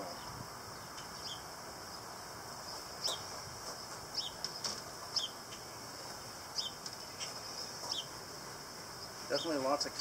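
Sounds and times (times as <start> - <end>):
small bird chirping: 0.0 - 8.2
honeybees humming: 0.0 - 10.0.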